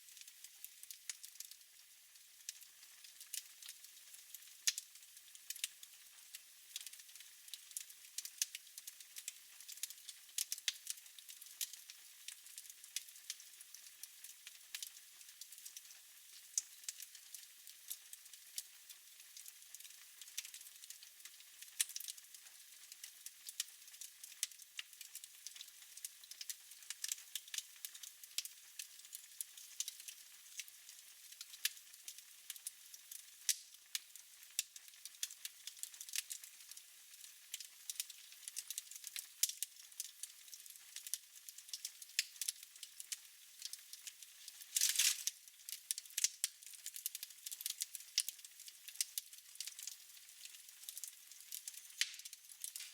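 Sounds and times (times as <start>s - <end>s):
wood fire crackling: 0.1s - 1.6s, 2.4s - 52.9s
steady hiss: 51.9s - 52.9s.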